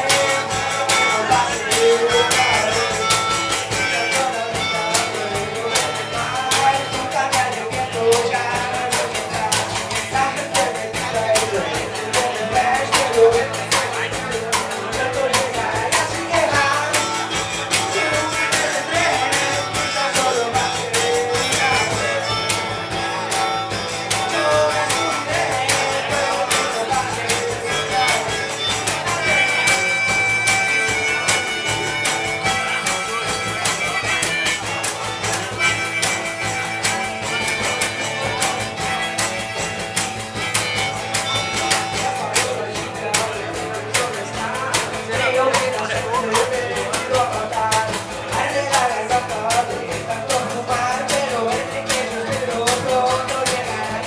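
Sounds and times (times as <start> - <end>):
drum beats: 0.0 - 54.0
guitar: 0.0 - 54.0
high held melody notes: 0.0 - 54.0
rock band playing: 0.0 - 54.0.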